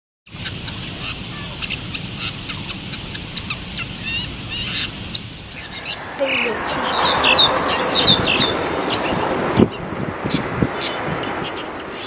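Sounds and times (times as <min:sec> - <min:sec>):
bird chirping: 0:00.3 - 0:12.0
steady low rumble: 0:00.4 - 0:10.7.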